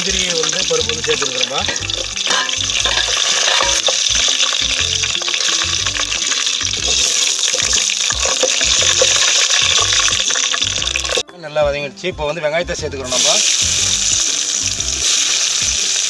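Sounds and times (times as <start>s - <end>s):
nuts sizzling in hot oil: 0.0s - 11.2s, 13.1s - 16.0s
background music: 0.0s - 16.0s
stirring scrape and clink: 1.4s - 11.2s.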